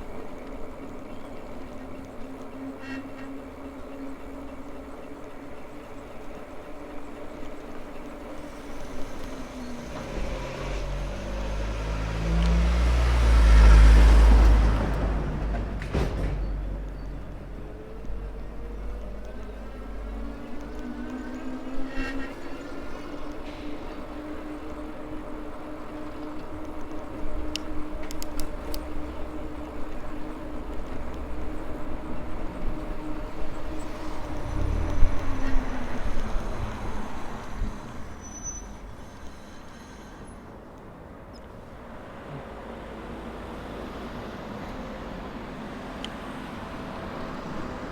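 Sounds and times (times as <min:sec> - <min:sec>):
tyres rumbling: 0:00.0 - 0:40.6
wind: 0:00.0 - 0:47.9
vehicle passing by: 0:09.0 - 0:16.9, 0:28.4 - 0:39.7
sharp clicks: 0:26.6 - 0:30.0.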